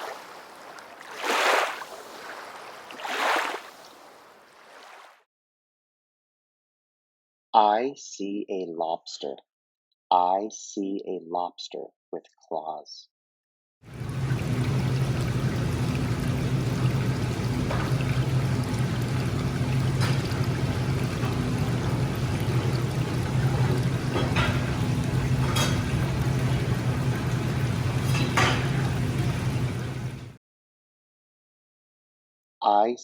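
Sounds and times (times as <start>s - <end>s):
water pouring and bubbling: 0.0s - 3.7s, 13.9s - 30.4s.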